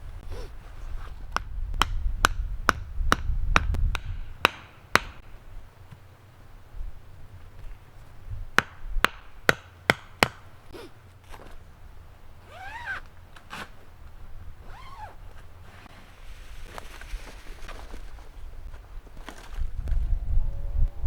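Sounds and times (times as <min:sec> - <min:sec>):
wood chopping knocks: 0:01.4 - 0:05.2, 0:08.6 - 0:10.5.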